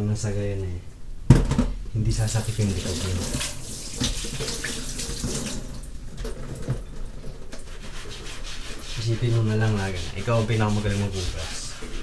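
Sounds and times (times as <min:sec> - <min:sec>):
faucet water running into sink: 0:02.2 - 0:05.9
dishes being washed: 0:02.2 - 0:06.8.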